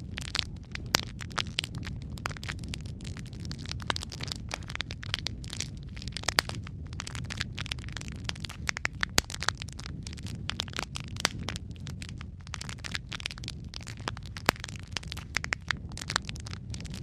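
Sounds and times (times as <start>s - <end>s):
low rumble of flames: 0.0s - 17.0s
wood fire popping and snapping: 0.0s - 17.0s.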